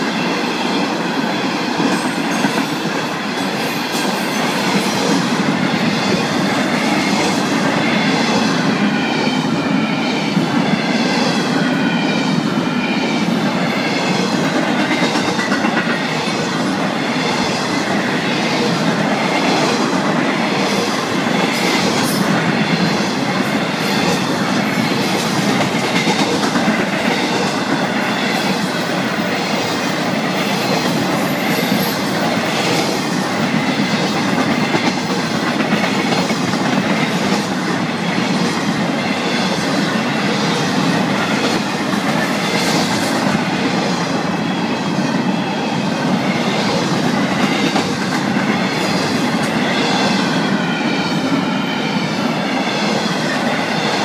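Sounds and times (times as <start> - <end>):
steel wheels clattering on rails: 13.3 - 44.0.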